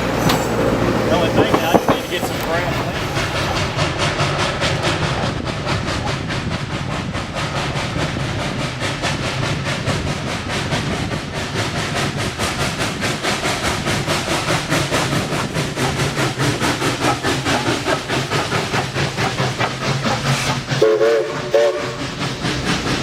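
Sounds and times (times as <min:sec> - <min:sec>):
steam locomotive chuffing: 0:00.0 - 0:23.0.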